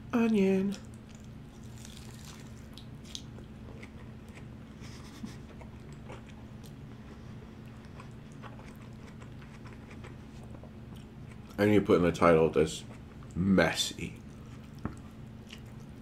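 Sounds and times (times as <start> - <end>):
man chewing burger: 0.8 - 11.6, 14.1 - 16.0
faint clicks while chewing: 14.2 - 16.0.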